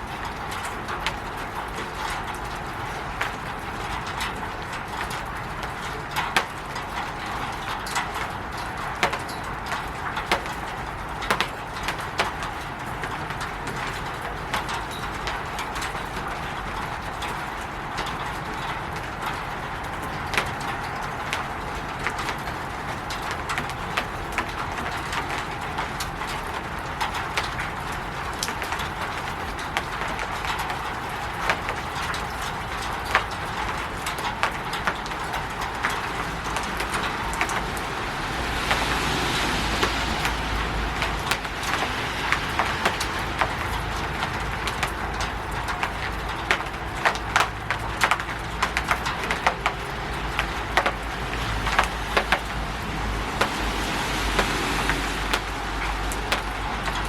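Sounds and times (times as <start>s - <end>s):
rain hissing on a roof: 0.0s - 57.0s
rushing with low rumble: 17.0s - 57.0s.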